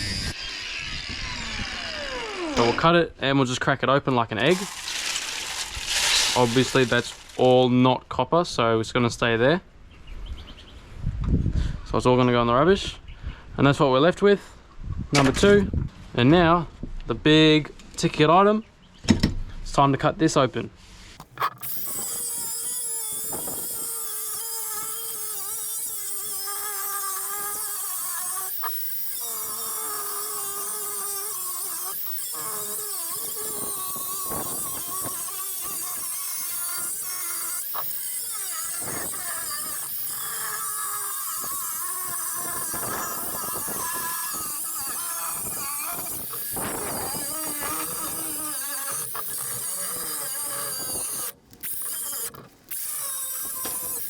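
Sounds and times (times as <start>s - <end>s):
power tool cutting metal: 0.0s - 3.0s, 4.4s - 7.6s, 21.2s - 54.0s.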